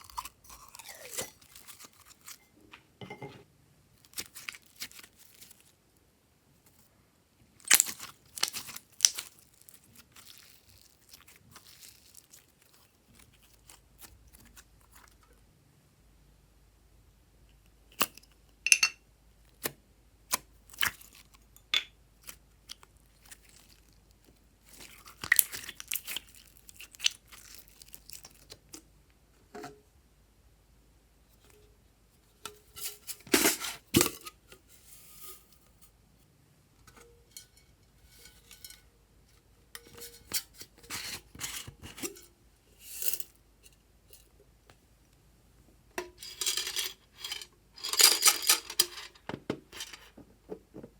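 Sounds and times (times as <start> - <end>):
slime crackling and tearing: 4.0 - 5.7, 7.6 - 15.1, 22.2 - 28.6.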